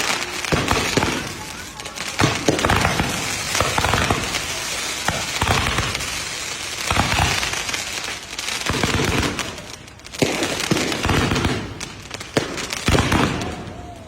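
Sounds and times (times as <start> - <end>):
fireworks crackling and hissing: 0.0 - 14.0
fireworks sharp bangs: 0.0 - 14.0.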